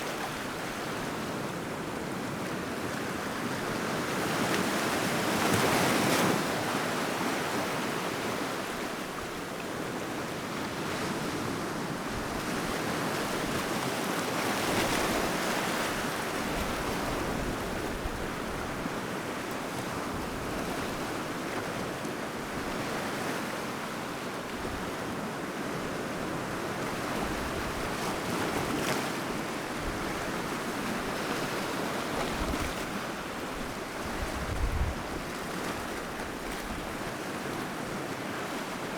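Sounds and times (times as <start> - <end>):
sea waves breaking on shore: 0.0 - 38.9
wind on microphone: 32.2 - 37.0.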